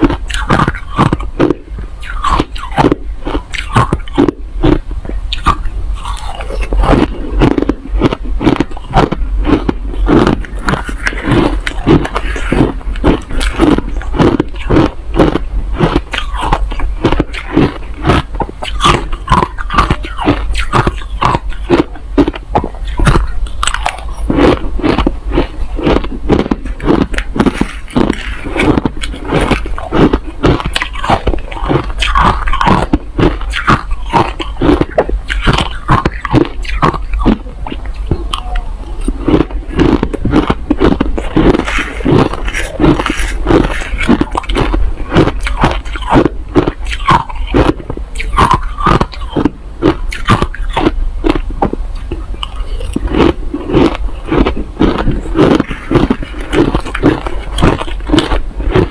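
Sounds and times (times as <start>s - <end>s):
person crunching ice: 0.0s - 37.5s, 38.1s - 51.8s, 52.4s - 58.9s
steady low hum: 0.0s - 58.9s.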